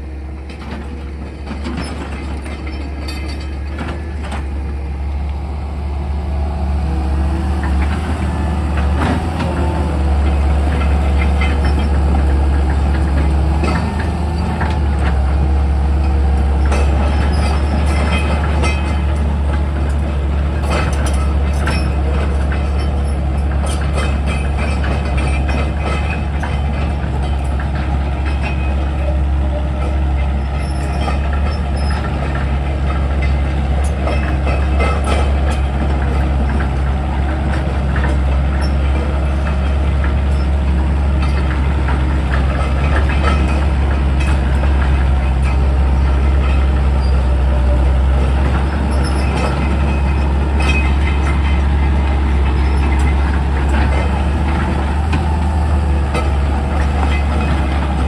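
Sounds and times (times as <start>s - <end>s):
excavator diesel engine humming: 0.0s - 58.0s
machine clanks and knocks: 0.4s - 58.0s.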